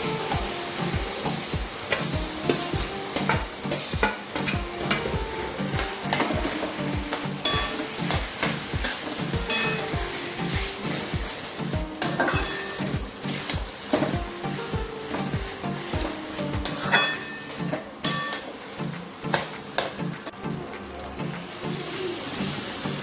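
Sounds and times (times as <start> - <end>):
background music with beat: 0.0 - 23.0
food sizzling in hot oil: 0.0 - 23.0
metal utensil clinking on pan: 7.4 - 9.8, 12.0 - 12.9, 16.6 - 18.5.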